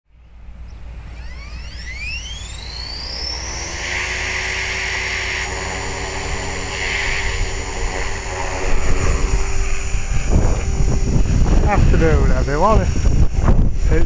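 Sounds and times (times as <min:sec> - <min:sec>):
rc helicopter motor whine: 0:00.2 - 0:14.0
rotor hum: 0:00.4 - 0:14.0
wind buffeting microphone: 0:05.3 - 0:14.0.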